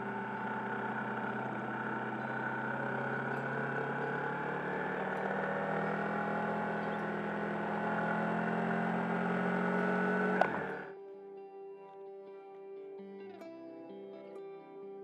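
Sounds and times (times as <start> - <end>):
engine cutting off with click: 0.0 - 10.9
motorcycle engine running: 0.0 - 10.9.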